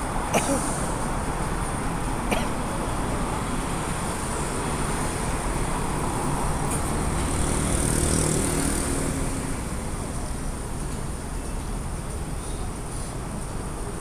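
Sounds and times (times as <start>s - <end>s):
road traffic rumble and hiss: 0.0s - 14.0s
vehicle engine passing: 6.0s - 9.7s.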